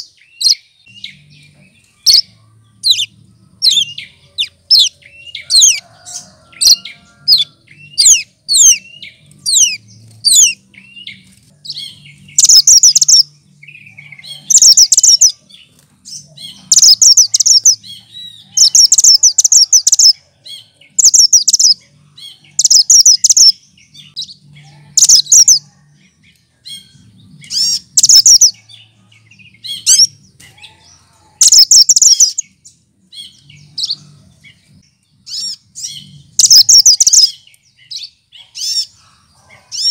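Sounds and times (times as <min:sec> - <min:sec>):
bird chattering loudly: 0:14.4 - 0:15.3, 0:16.4 - 0:17.8, 0:27.6 - 0:28.5, 0:36.4 - 0:37.3.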